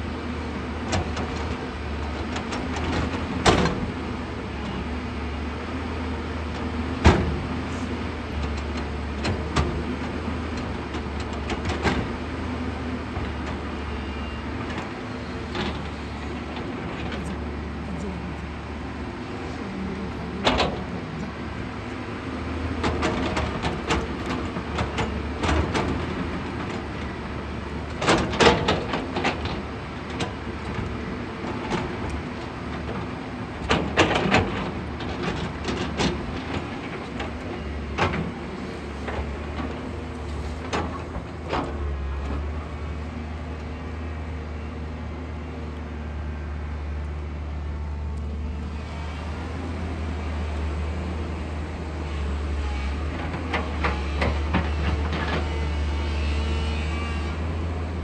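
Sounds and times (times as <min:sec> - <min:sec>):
excavator diesel engine running: 0:00.0 - 0:58.0
bucket clanking and scraping soil: 0:33.7 - 0:44.1.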